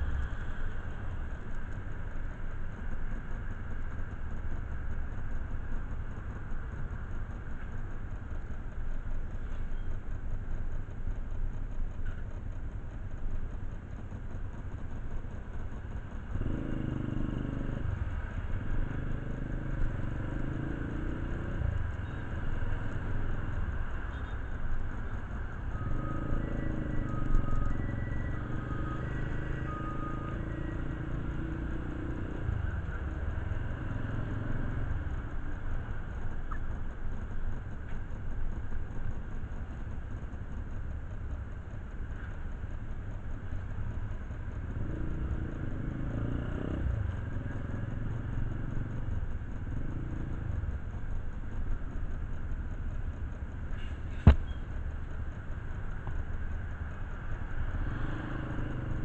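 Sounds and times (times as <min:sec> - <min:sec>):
even-pitched engine hum: 0:00.0 - 0:59.0
motorcycle engine rumbling: 0:00.0 - 0:59.0.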